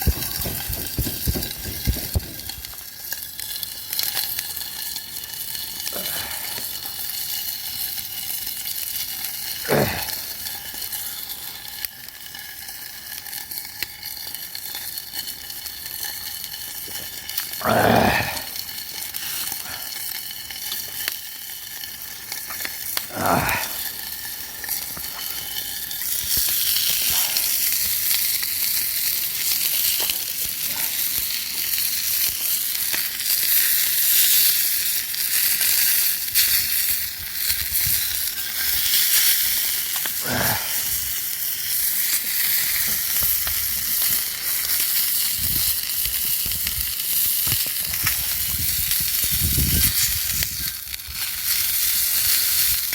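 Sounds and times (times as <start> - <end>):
food sizzling in a pan: 0.0 - 52.9.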